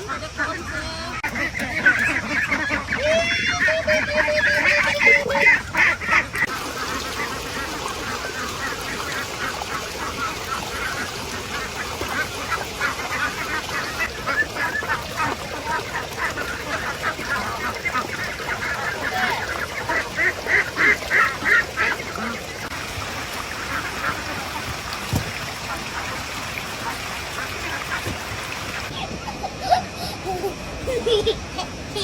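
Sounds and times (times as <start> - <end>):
waterfowl calling: 0.0 - 22.8.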